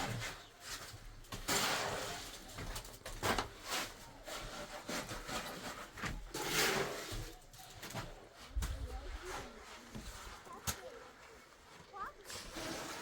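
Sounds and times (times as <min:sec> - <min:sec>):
rough scraping strokes: 0:00.0 - 0:07.4, 0:12.2 - 0:13.0.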